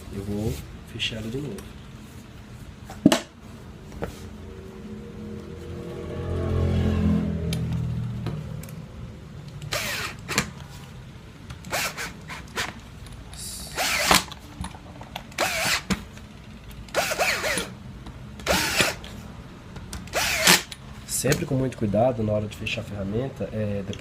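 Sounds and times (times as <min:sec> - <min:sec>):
cordless screwdriver whirring: 0:09.6 - 0:10.5, 0:11.6 - 0:12.8, 0:13.6 - 0:14.4, 0:15.3 - 0:16.0, 0:16.9 - 0:17.7, 0:18.4 - 0:19.1, 0:20.0 - 0:20.8.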